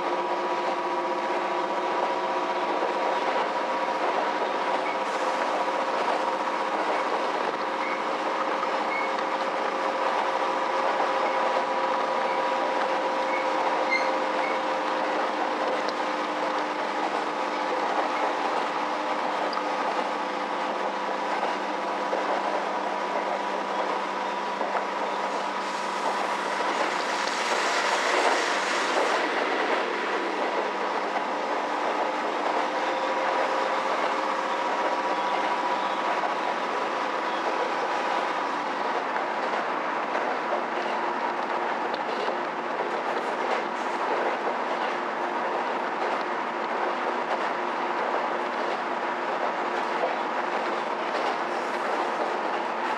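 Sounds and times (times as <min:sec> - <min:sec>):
railcar rumbling running noise: 0:00.0 - 0:52.9
rushing hiss: 0:05.0 - 0:05.7, 0:25.2 - 0:31.7.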